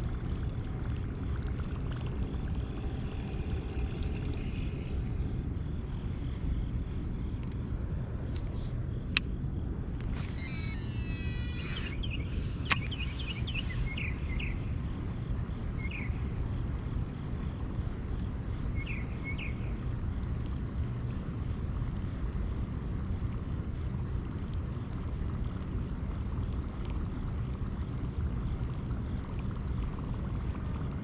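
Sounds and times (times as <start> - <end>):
low outdoor rumble: 0.0 - 31.0
high bird chirps: 10.2 - 14.6.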